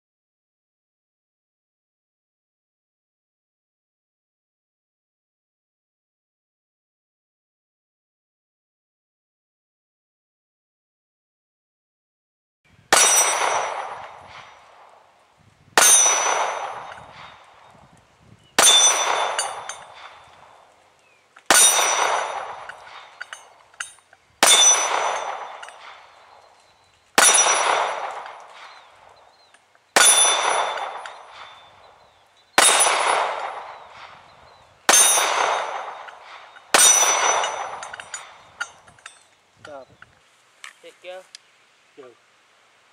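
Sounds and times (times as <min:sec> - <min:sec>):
steel plate target ringing: 0:12.9 - 0:14.8, 0:15.8 - 0:17.5, 0:18.6 - 0:20.4, 0:21.5 - 0:26.4, 0:27.2 - 0:31.8, 0:32.6 - 0:39.3.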